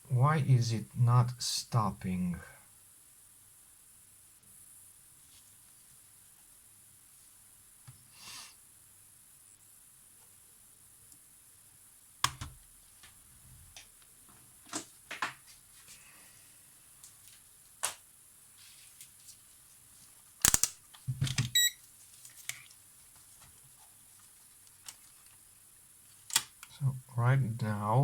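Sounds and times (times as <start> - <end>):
camera mechanism clicking: 20.4 - 20.7.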